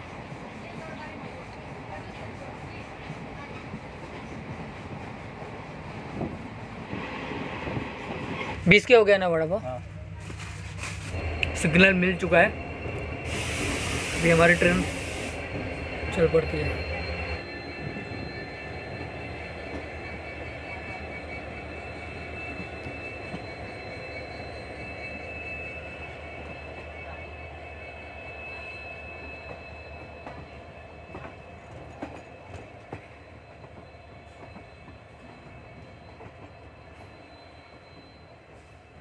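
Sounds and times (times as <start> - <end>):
train wheel and rail rumble: 0.0 - 39.0
high steady squeal: 11.0 - 39.0.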